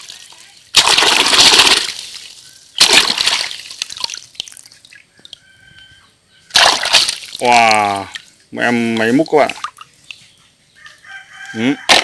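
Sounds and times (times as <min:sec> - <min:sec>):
water splashing and sloshing: 0:00.0 - 0:05.4, 0:06.5 - 0:10.3
water dripping: 0:06.6 - 0:10.2.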